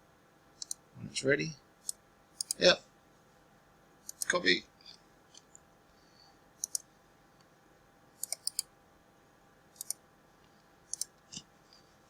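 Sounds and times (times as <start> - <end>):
computer clicks: 0.6 - 0.8, 1.8 - 2.6, 4.0 - 4.4, 6.6 - 6.9, 8.2 - 8.7, 9.8 - 10.0, 10.9 - 11.2.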